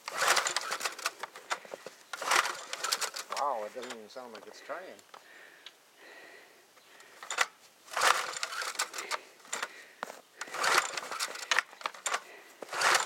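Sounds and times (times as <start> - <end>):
mower recoil starter pulls: 0.0 - 4.0, 7.2 - 9.7, 10.4 - 13.0.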